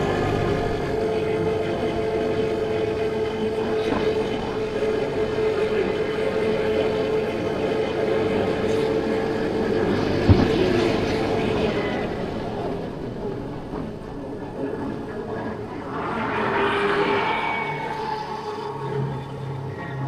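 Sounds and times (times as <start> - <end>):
scooter engine cruising: 0.0 - 5.5
road noise: 0.0 - 20.0.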